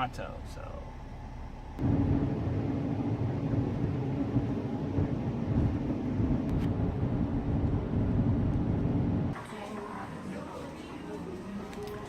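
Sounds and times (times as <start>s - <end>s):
car engine drone: 0.0s - 9.4s
road noise: 0.0s - 12.0s.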